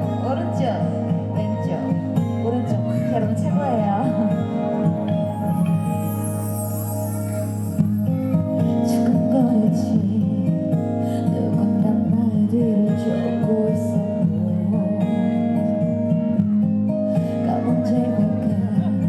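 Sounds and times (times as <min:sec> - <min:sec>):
strummed acoustic guitar: 0:00.0 - 0:19.0
live band playing: 0:01.4 - 0:09.9.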